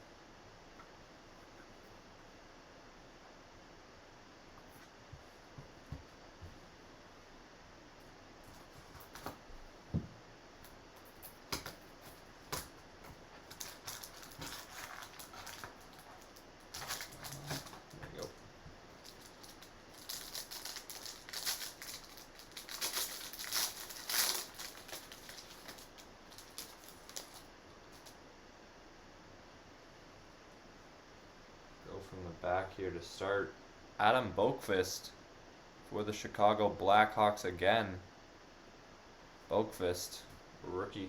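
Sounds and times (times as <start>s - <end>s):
plastic wrapper crinkling: 12.5s - 18.3s, 18.9s - 28.1s.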